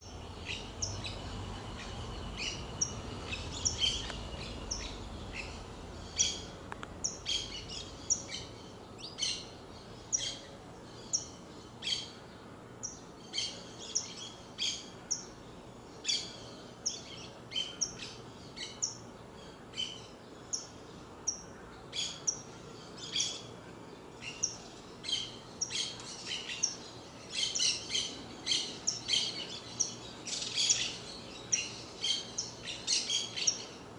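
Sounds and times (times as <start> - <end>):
finch chirping: 0.0 - 10.4.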